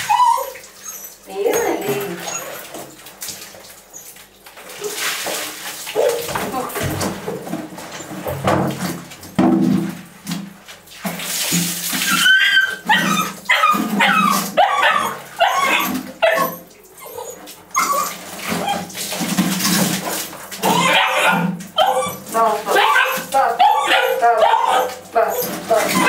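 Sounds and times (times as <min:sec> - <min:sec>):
puppies whimpering and yipping: 0:00.0 - 0:02.8, 0:12.0 - 0:19.0, 0:20.6 - 0:26.0.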